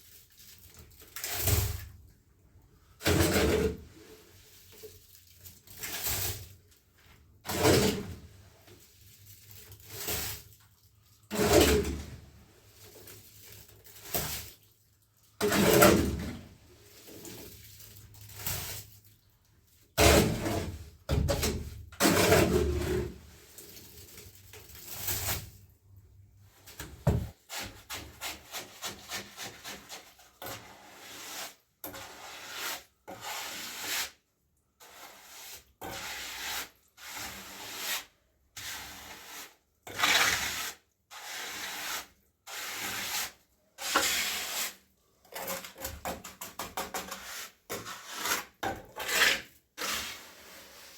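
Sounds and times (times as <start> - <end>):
hand tool scraping rough surface: 3.0 - 4.1, 7.4 - 8.3, 11.3 - 12.2, 15.4 - 16.4, 20.0 - 25.6, 27.1 - 34.2, 34.8 - 50.9.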